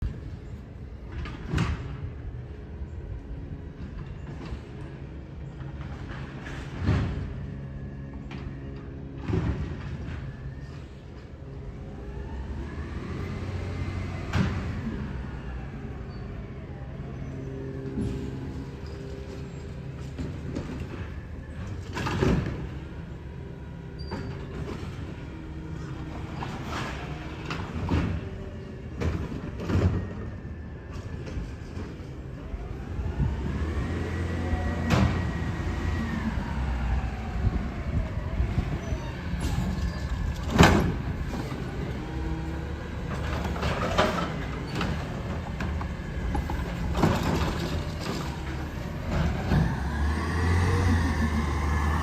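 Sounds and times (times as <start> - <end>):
truck engine running: 39.8 - 52.0.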